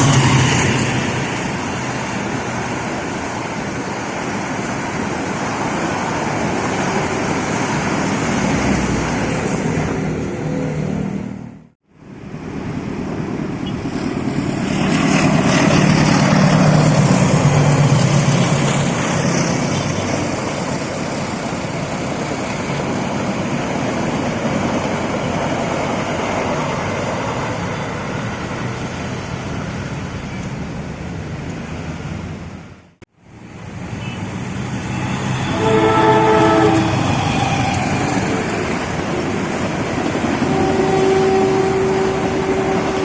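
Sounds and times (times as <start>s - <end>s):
electric train passing: 0.0s - 43.0s.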